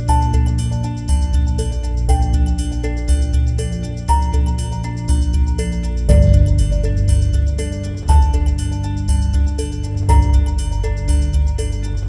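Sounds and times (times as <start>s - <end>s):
deep bass: 0.0s - 12.0s
plucked or mallet notes: 0.0s - 12.0s.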